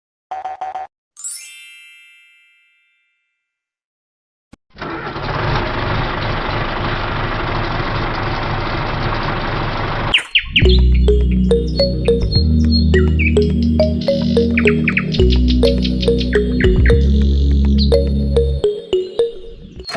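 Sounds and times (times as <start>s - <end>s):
chime ringing: 1.2s - 3.1s, 11.1s - 17.2s, 17.9s - 19.9s.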